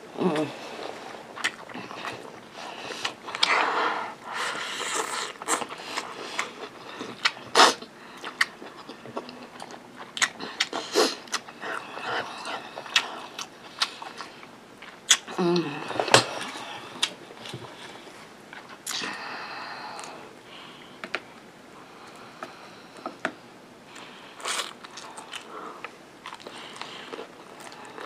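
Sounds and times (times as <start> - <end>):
person chewing with lip smacks: 1.4 - 2.4, 4.8 - 11.8.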